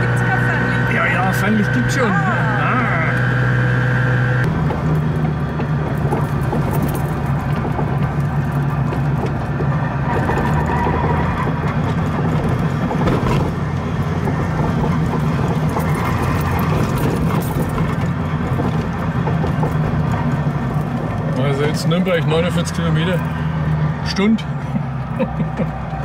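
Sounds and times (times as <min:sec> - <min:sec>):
two-stroke car engine running: 0:00.0 - 0:10.2
road noise: 0:00.0 - 0:26.0.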